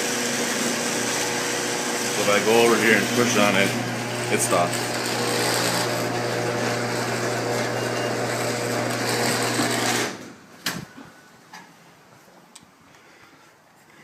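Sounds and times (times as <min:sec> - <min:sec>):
garage door opener motor hum: 0:00.0 - 0:10.3.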